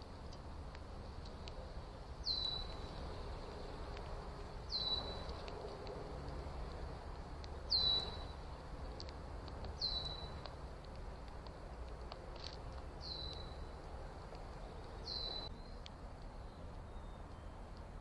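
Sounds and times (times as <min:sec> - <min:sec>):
bird whistling call: 0:04.7 - 0:05.2, 0:07.7 - 0:08.3, 0:15.1 - 0:15.8.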